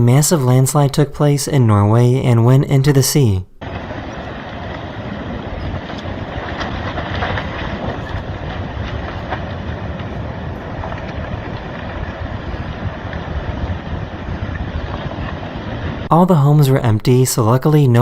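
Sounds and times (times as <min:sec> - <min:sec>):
landslide rushing and rumbling: 0:00.0 - 0:18.0
sharp cracks: 0:03.6 - 0:16.1
wind buffeting microphone: 0:03.6 - 0:16.1.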